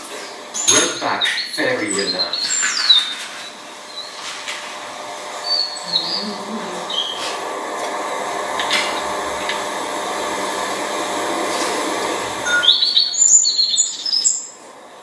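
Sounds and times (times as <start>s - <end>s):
high bird chirps: 0.6s - 4.3s, 5.4s - 7.4s, 12.4s - 14.6s.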